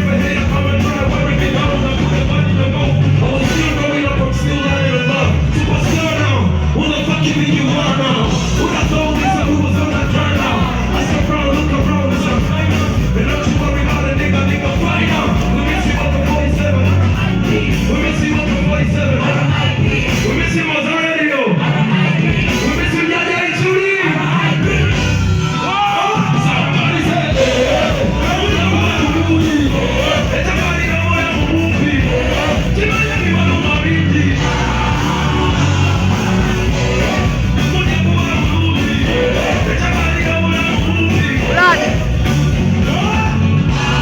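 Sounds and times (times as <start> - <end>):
live band music through pa: 0.0 - 44.0
person singing: 27.3 - 42.0
person shouting: 41.5 - 41.9.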